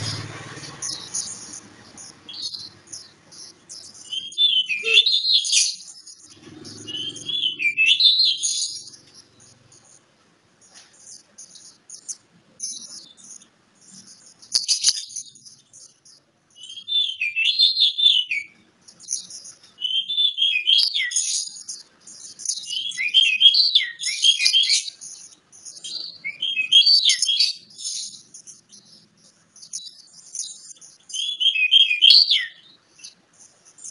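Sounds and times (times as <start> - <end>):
bird warbling song: 0.0 - 33.9
high twittering: 0.0 - 33.9.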